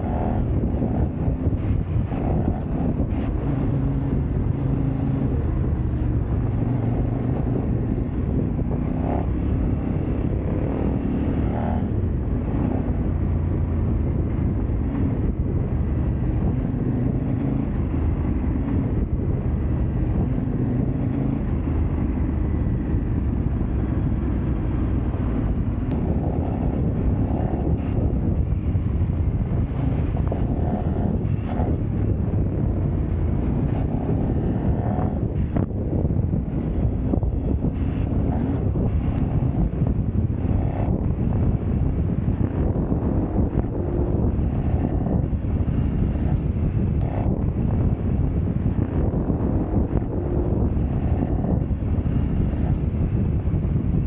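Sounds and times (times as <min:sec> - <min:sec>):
motorcycle engine revving: 0:00.0 - 0:54.0
wind on microphone: 0:00.0 - 0:54.0.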